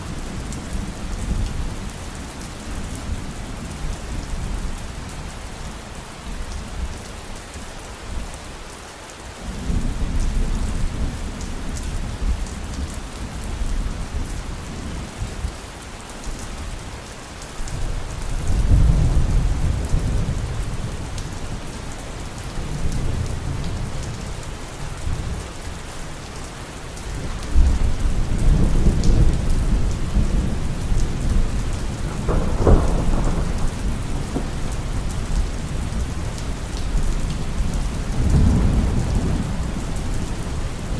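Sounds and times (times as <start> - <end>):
heavy rain: 0.0 - 40.9
thunder rolling: 27.6 - 36.1, 38.2 - 39.6.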